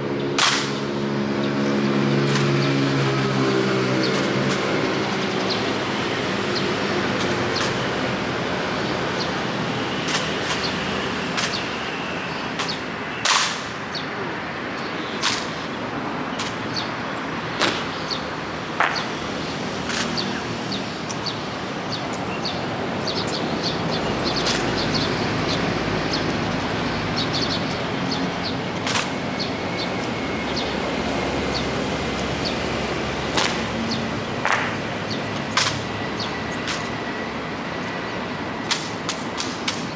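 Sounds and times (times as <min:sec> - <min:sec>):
sharp clicks and knocks: 0:19.8 - 0:20.4, 0:28.4 - 0:31.2, 0:33.3 - 0:37.0, 0:38.6 - 0:39.9.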